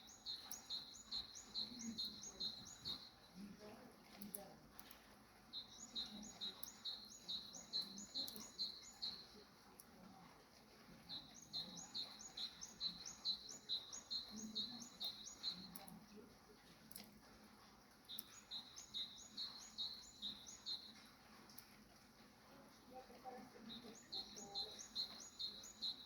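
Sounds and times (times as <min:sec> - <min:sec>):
small bird chirping: 0:00.0 - 0:03.3, 0:04.2 - 0:09.4, 0:11.1 - 0:16.0, 0:18.1 - 0:21.1, 0:23.3 - 0:26.0.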